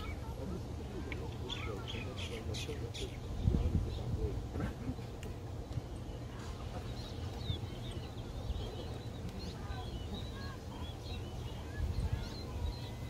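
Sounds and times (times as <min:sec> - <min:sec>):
birds chirping: 0:00.0 - 0:13.0
wind rumble on microphone: 0:03.2 - 0:04.8, 0:11.5 - 0:13.0.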